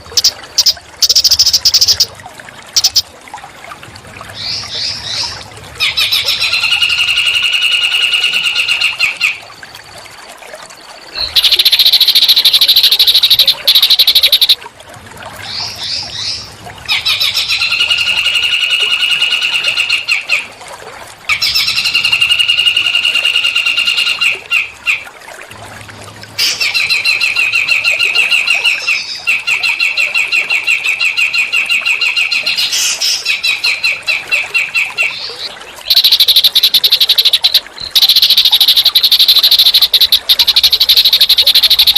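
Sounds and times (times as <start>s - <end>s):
songbird buzzy trills: 0.0s - 2.1s, 2.7s - 3.1s, 10.8s - 14.6s, 35.0s - 41.9s.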